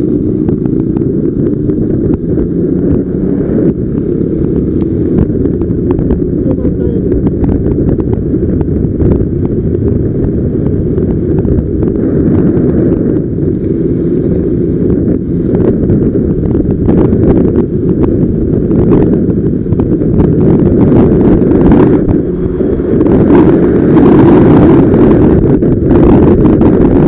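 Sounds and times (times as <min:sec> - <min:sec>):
wind buffeting microphone: 0:00.0 - 0:27.0
wind crackles on microphone: 0:00.0 - 0:27.0.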